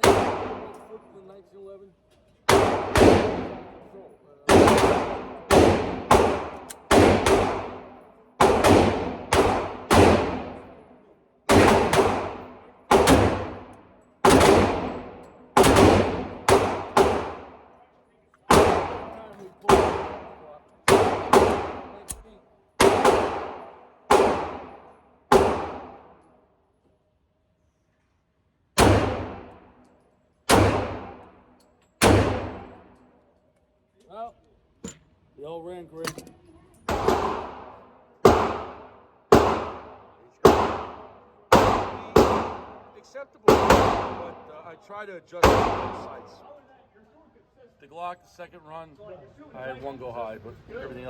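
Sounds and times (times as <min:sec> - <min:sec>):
pistol shots with echo: 0:00.0 - 0:01.0, 0:02.5 - 0:10.9, 0:11.5 - 0:17.8, 0:18.5 - 0:22.2, 0:22.8 - 0:26.2, 0:28.8 - 0:29.8, 0:30.5 - 0:33.0, 0:36.9 - 0:44.6, 0:45.4 - 0:46.4.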